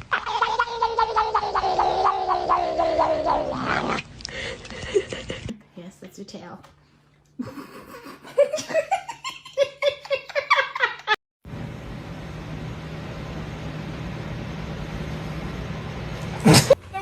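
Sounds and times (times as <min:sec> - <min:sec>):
person laughing: 0:04.4 - 0:05.5, 0:07.4 - 0:11.2, 0:16.4 - 0:16.8.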